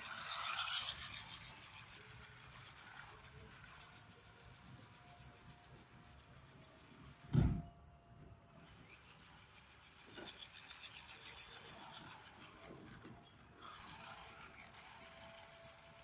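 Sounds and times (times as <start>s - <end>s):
faint rasping scrapes: 8.6s - 16.0s.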